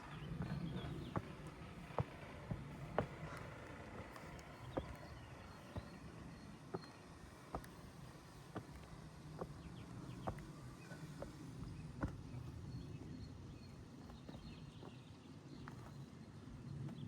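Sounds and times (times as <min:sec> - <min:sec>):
footsteps walking: 0:00.3 - 0:06.1.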